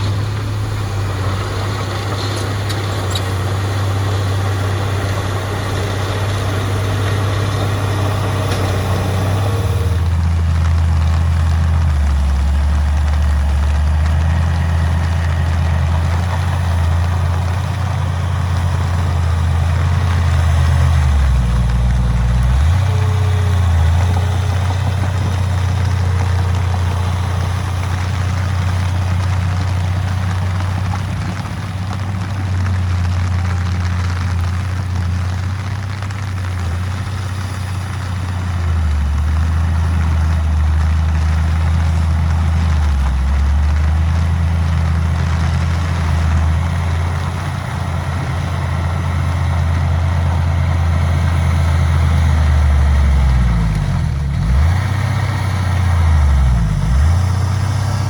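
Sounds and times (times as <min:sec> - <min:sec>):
heavy diesel engine droning: 0:00.0 - 0:58.0.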